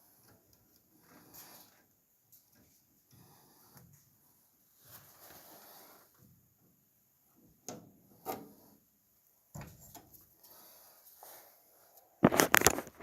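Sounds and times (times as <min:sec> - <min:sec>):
objects clattering: 0:12.2 - 0:13.0.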